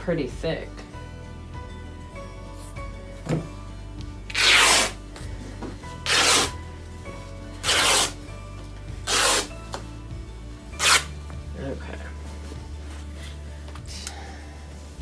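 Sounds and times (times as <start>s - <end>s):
background music: 0.0s - 15.0s
fabric ripping: 4.3s - 5.0s, 6.0s - 6.6s, 7.6s - 8.2s, 9.0s - 9.6s, 10.8s - 11.2s.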